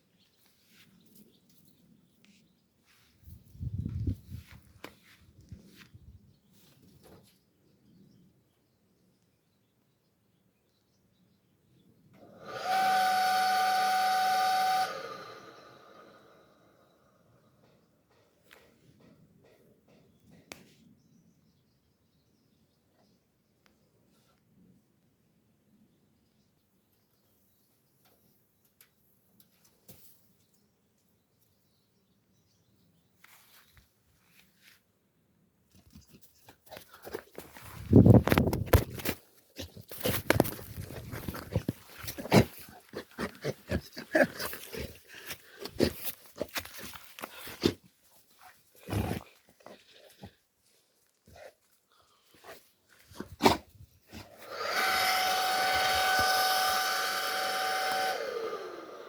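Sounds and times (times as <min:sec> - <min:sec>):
electric motor whining: 0:12.3 - 0:16.4, 0:54.4 - 0:59.0.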